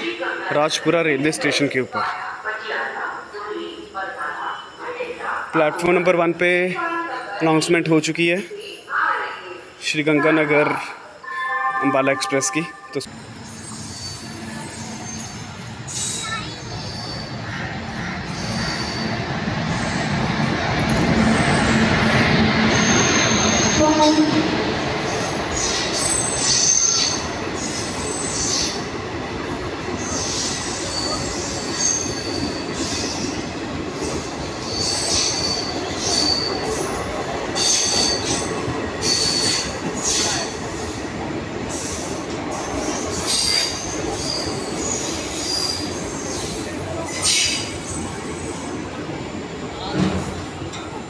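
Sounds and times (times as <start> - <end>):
train rumble: 12.9 - 51.0
train wheel squeals: 13.2 - 20.2, 20.9 - 41.0, 41.7 - 48.7.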